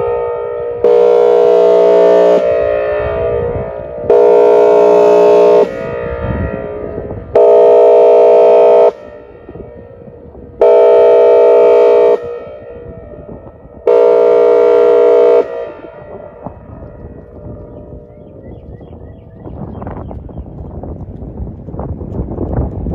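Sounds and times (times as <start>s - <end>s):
warning siren air horn blasts: 0.0s - 19.6s.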